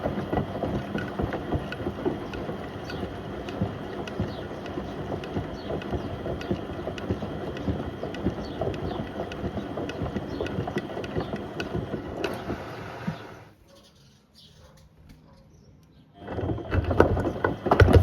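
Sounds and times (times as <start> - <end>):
water sloshing in washing machine: 0.0 - 13.2
appliances knocking in drum: 16.7 - 18.0.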